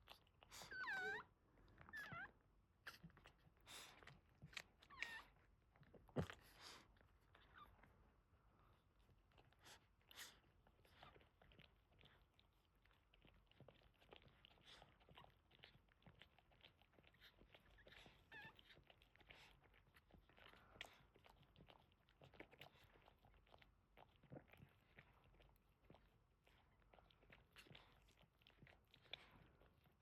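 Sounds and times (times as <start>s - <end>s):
puppy squeak: 0.6s - 1.3s, 1.9s - 2.3s
dog licking and smacking: 8.7s - 30.0s.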